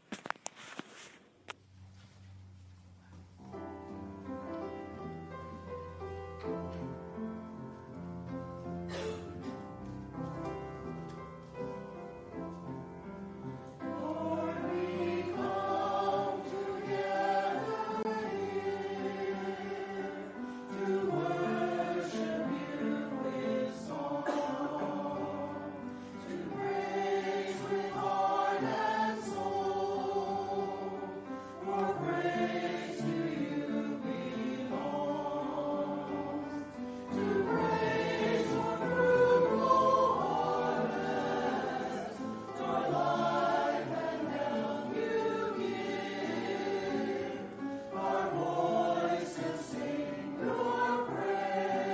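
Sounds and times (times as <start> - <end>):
choir singing: 12.2 - 51.9.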